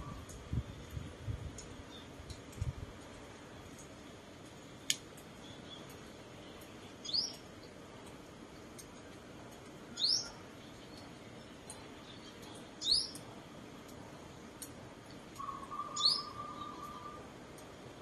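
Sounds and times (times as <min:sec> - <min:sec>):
small bird chirping: 0:06.6 - 0:07.4, 0:10.0 - 0:13.2, 0:15.4 - 0:17.2.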